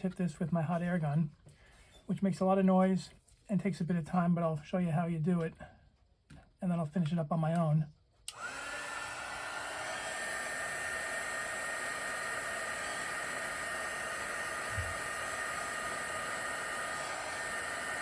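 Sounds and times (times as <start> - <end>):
hot air gun blowing: 8.3 - 18.0.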